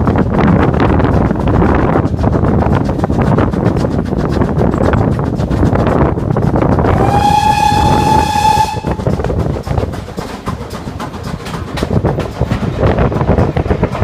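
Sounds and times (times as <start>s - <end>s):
running train rhythmic beat: 0.0s - 14.0s
steam locomotive whistle: 6.8s - 9.1s.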